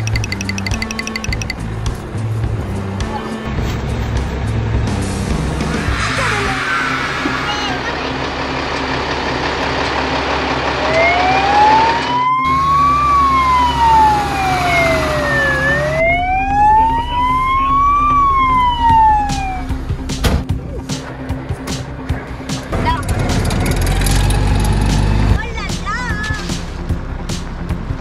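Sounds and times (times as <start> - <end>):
engine and road noise: 0.0 - 28.0
fire engine siren wailing: 10.7 - 19.8.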